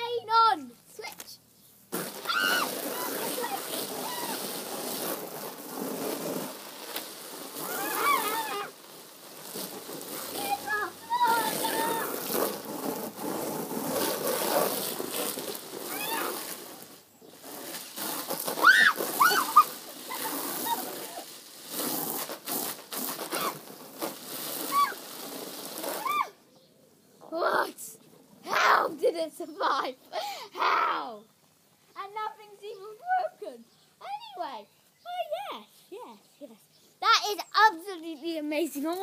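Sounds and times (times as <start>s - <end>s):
hose spray splashing on cardboard: 1.0s - 26.4s
child shrieking: 2.2s - 4.4s, 7.6s - 8.8s, 10.4s - 12.1s, 15.9s - 16.4s, 18.6s - 21.2s, 23.3s - 23.6s, 24.7s - 25.0s, 26.0s - 26.4s
short high squeal: 7.6s - 8.7s, 23.2s - 23.6s, 24.6s - 25.0s.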